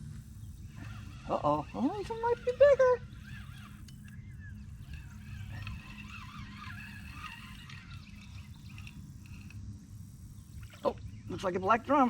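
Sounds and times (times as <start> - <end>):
faint chirping calls: 0.0 - 12.0
wind: 0.0 - 12.0.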